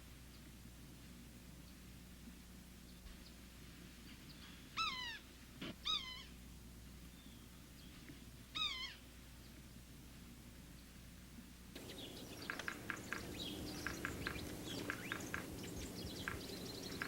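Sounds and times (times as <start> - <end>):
faint steady hum: 0.0 - 17.0
bird calling falling notes: 11.8 - 17.0.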